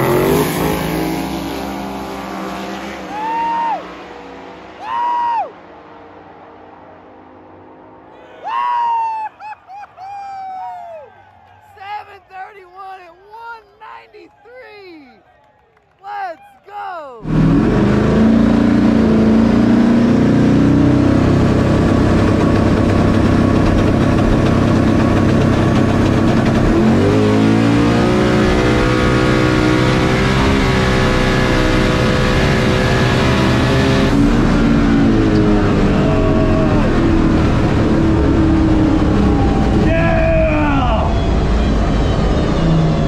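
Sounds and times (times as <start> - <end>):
car engine revving: 0.0 - 4.9, 17.2 - 43.0.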